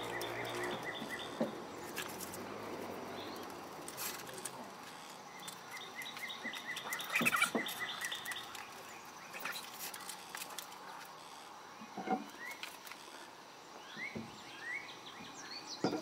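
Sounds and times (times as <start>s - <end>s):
bird chirping: 0.0s - 3.7s, 5.0s - 10.2s, 13.7s - 16.0s.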